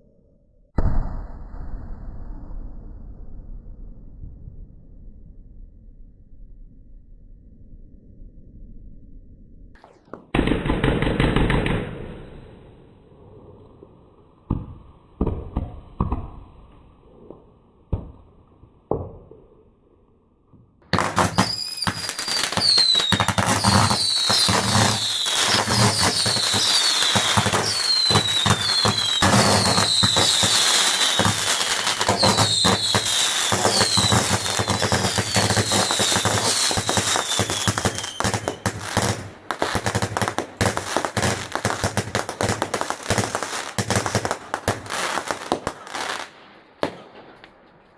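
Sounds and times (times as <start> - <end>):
fireworks falling whistles: 9.8 - 12.8, 20.9 - 47.9
fireworks crackling bangs: 20.9 - 47.9.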